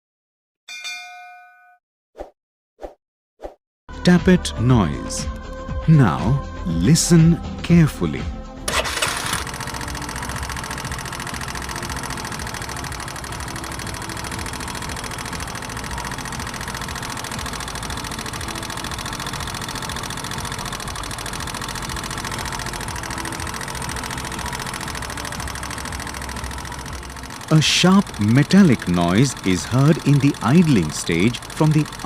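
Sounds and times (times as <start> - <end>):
motorcycle engine idling: 8.8 - 32.0
sharp metallic tappet ticking: 9.6 - 32.0.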